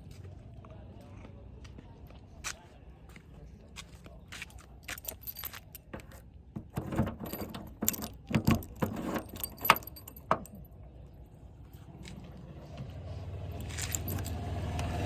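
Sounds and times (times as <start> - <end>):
clicks and knocks of handling: 4.4 - 10.7
light metallic rattles: 4.7 - 11.1, 13.5 - 15.0.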